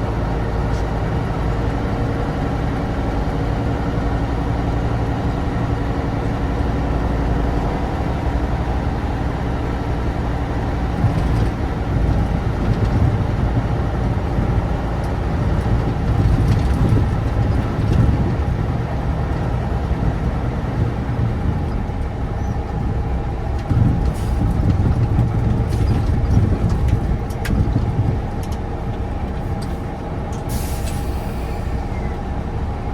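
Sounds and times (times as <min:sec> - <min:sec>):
truck engine running: 0:00.0 - 0:32.9
hiss of air: 0:30.5 - 0:31.8.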